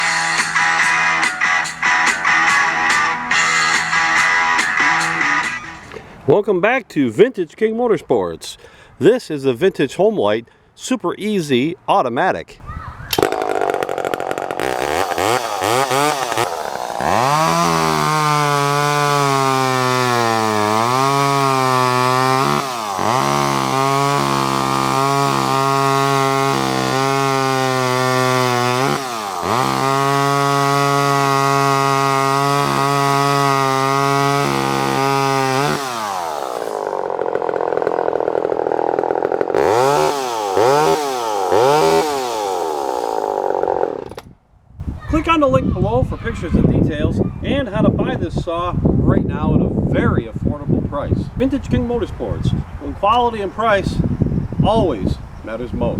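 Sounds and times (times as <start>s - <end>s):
chainsaw cutting wood: 0.0s - 6.1s, 13.1s - 44.3s.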